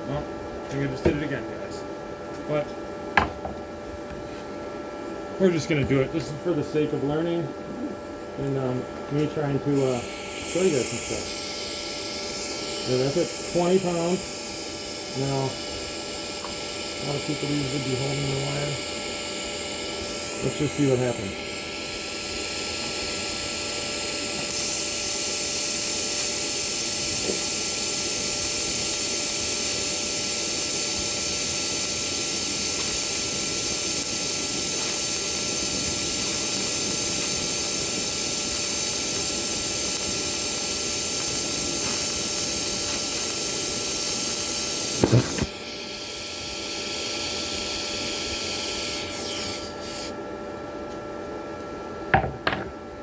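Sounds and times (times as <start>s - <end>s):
welding arc buzzing hiss: 0.0s - 53.0s
sharp knocks: 3.2s - 3.6s, 52.2s - 52.8s.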